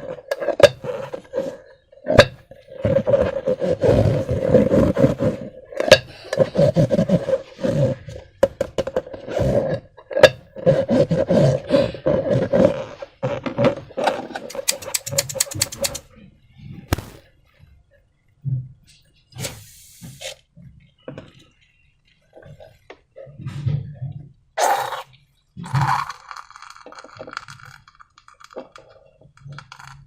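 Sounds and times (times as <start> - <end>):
rubbery squeaks and squelching: 10.6 - 16.1
sharp sticky clicks: 14.5 - 16.0.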